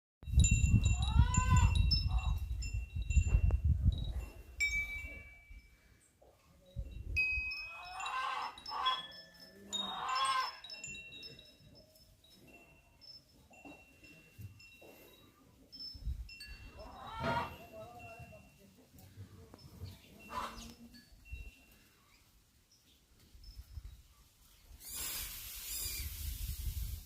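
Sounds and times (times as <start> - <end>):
wind chime ringing: 0.2 - 24.1
animal calls: 7.7 - 10.6, 16.8 - 17.7, 20.2 - 20.8.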